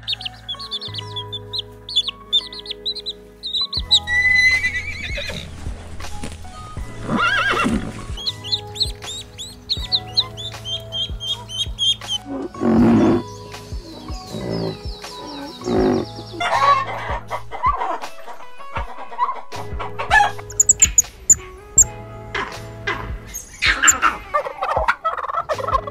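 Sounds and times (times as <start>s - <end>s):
goslings peeping: 0.0s - 5.6s, 7.1s - 17.3s, 20.1s - 21.9s
quail chicks peeping: 0.0s - 5.6s, 7.9s - 18.0s, 20.1s - 21.9s, 23.4s - 25.9s
background music: 0.0s - 25.9s
horse whinnying: 3.9s - 5.5s, 7.0s - 8.3s, 15.6s - 16.1s.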